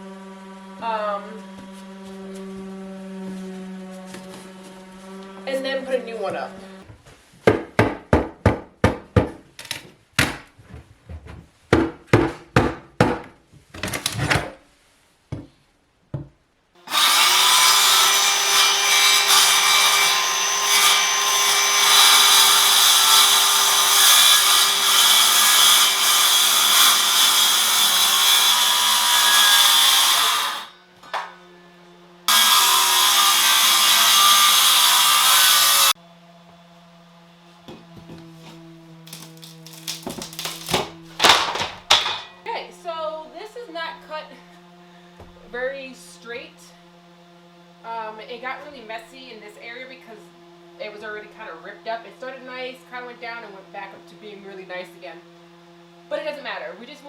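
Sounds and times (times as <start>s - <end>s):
power saw cutting wood: 0.0s - 6.9s, 16.8s - 57.0s
sharp knocks on wood: 7.4s - 9.4s.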